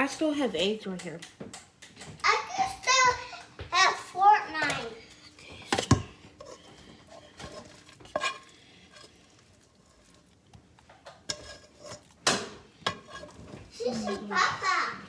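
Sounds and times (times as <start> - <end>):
dishes and utensils clinking: 4.6 - 9.2, 11.0 - 15.0.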